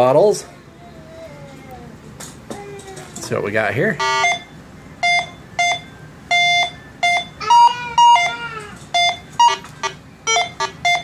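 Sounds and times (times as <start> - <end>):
metal detector beeping: 4.0 - 8.4, 9.0 - 11.0.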